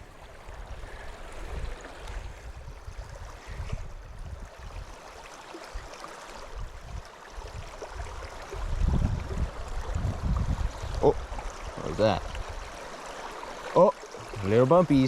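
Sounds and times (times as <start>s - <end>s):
river water rushing: 4.5s - 15.0s.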